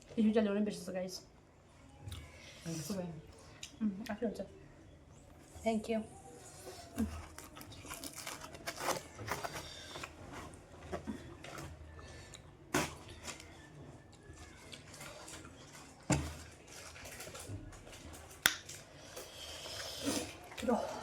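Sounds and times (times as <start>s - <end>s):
crunching and chewing snack: 6.5s - 21.0s.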